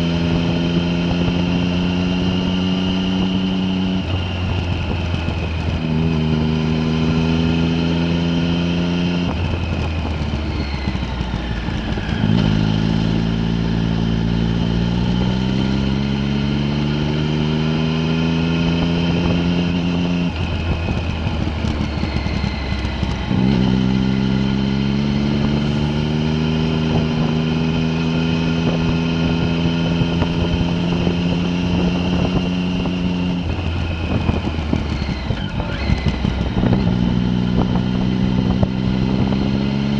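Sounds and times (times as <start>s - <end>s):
vehicle engine revving: 0.0s - 39.9s.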